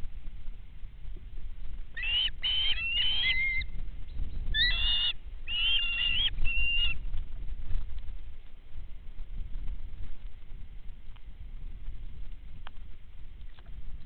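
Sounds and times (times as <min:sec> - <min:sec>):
steady low rumble: 0:00.0 - 0:14.0
birds calling: 0:02.0 - 0:07.0.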